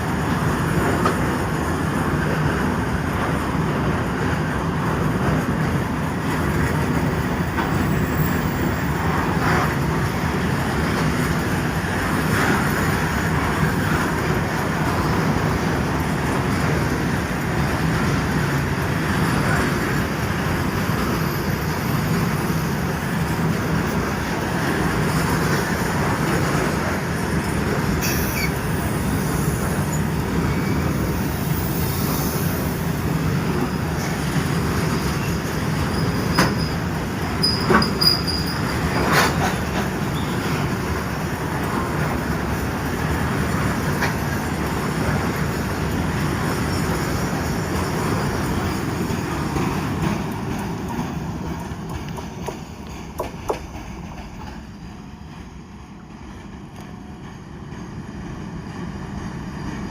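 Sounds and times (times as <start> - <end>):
train wheels rumbling on rails: 0.0 - 59.9
high squeal: 27.2 - 32.8, 35.0 - 39.0.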